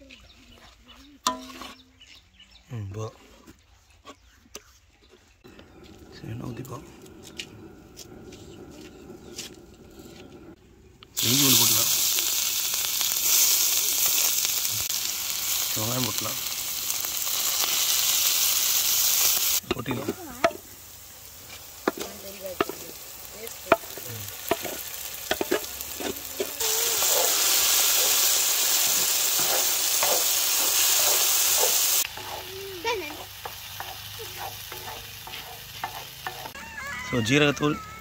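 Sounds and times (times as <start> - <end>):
spatula knocking and scraping pan: 1.2 - 1.9, 21.5 - 22.9, 23.5 - 27.3, 28.8 - 36.6
hot oil sizzling on griddle: 11.1 - 37.1.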